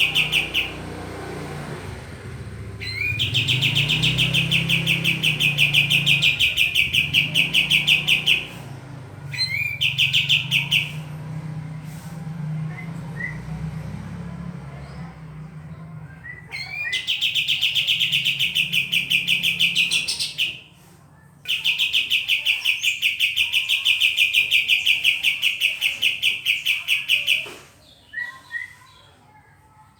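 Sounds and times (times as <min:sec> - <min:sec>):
bulbul calling rapid high notes: 0:02.8 - 0:11.3.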